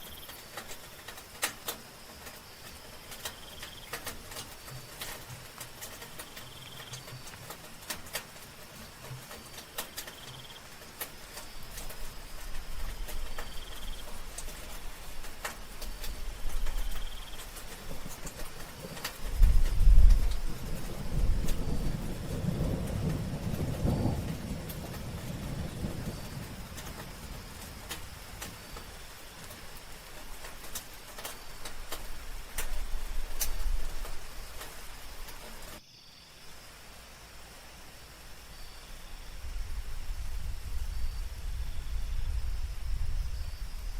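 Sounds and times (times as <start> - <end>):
high insect tone: 0.0 - 5.2, 5.8 - 7.4, 9.0 - 43.9
soft rain falling: 0.0 - 43.9
insect pulsed trill: 11.5 - 14.2, 16.3 - 17.6.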